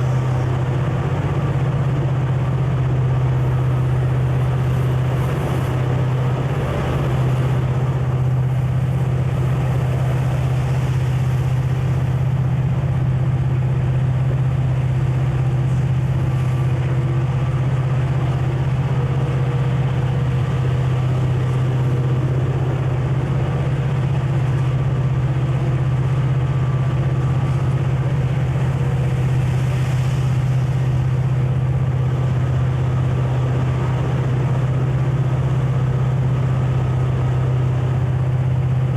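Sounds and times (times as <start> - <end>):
diesel locomotive engine drone: 0.0 - 38.9
rail rumble: 0.0 - 38.9.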